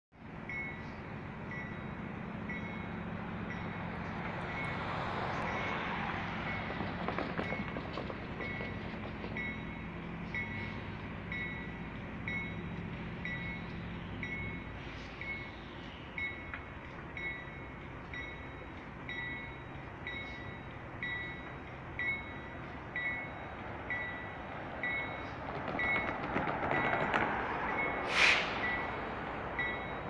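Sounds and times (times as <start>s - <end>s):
diesel engine hum: 0.2s - 30.0s
crossing bells ringing: 0.4s - 6.8s, 7.4s - 26.2s, 27.7s - 30.0s
rushing noise with clicks: 6.6s - 9.4s, 25.4s - 29.1s.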